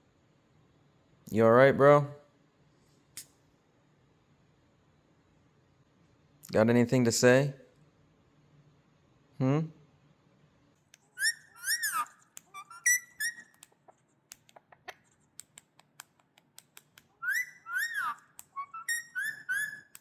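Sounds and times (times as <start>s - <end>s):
parakeet whistling: 11.2s - 13.7s, 17.2s - 20.0s
sharp clicks: 13.2s - 17.1s.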